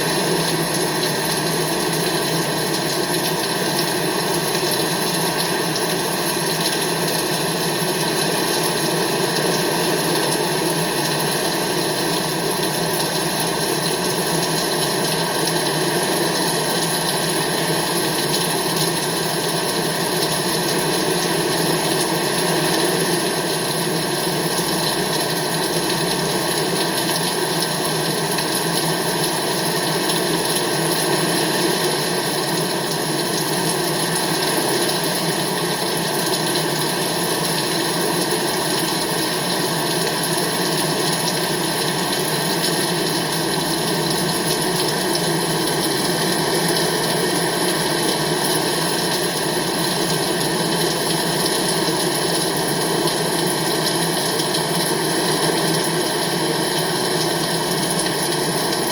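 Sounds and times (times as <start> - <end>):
rain: 23.7 - 58.8.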